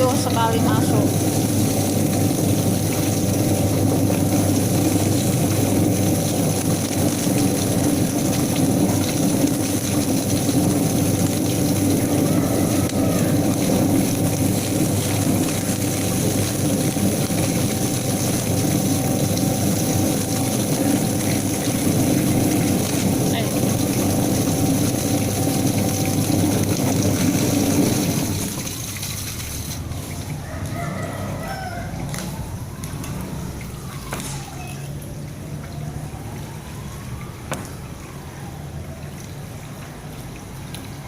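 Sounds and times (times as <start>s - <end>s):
plucking machine motor hum: 0.0s - 30.4s.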